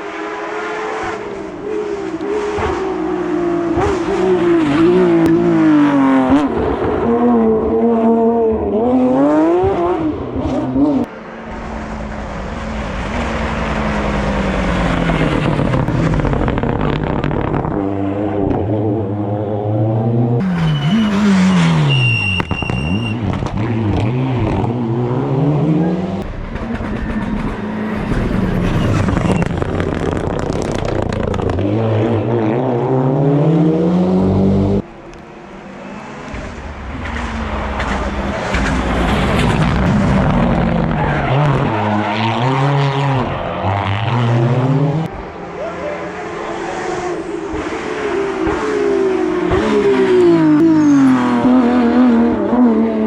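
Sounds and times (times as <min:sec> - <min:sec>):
race car engines revving: 0:00.0 - 0:53.0
high whistle: 0:20.4 - 0:23.2.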